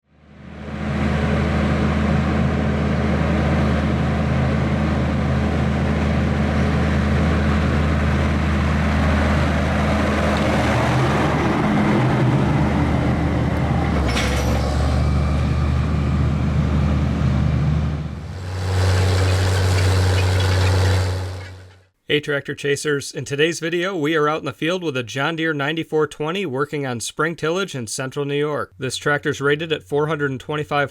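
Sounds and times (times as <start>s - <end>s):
tractor diesel engine under load: 0.3s - 21.9s.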